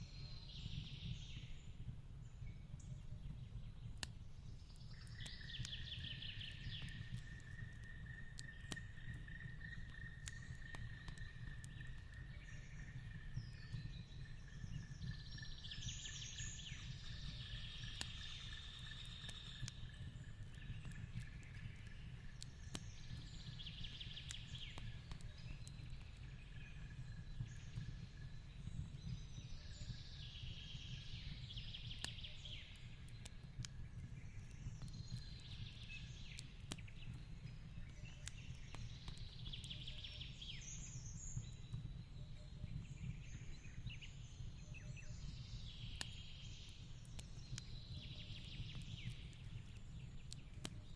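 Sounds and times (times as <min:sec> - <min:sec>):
fireplace fire crackling: 0:01.3 - 0:50.9.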